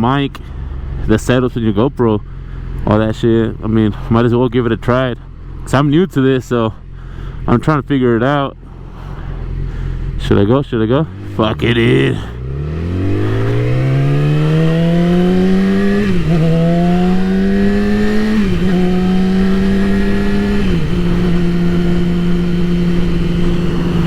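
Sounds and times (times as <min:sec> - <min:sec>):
motorcycle engine accelerating: 0:08.7 - 0:10.2, 0:11.0 - 0:24.0.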